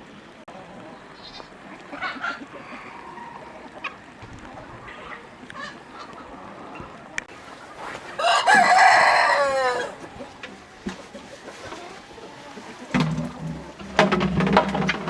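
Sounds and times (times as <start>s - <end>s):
chickens clucking: 0.0s - 15.0s
rooster crowing: 2.0s - 3.8s, 8.2s - 10.3s.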